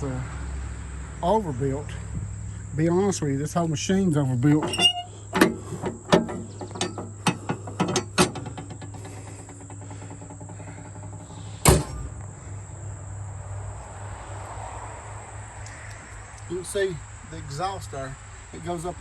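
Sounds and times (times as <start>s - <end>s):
clicks and knocks: 4.6s - 12.0s.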